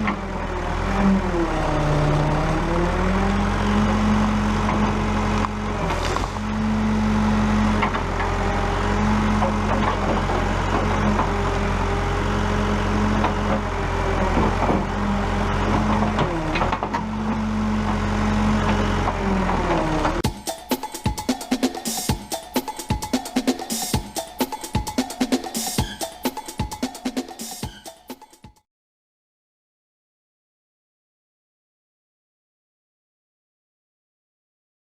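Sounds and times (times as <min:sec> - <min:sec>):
diesel engine running: 0:00.0 - 0:20.3
higher engine tone: 0:00.0 - 0:20.3.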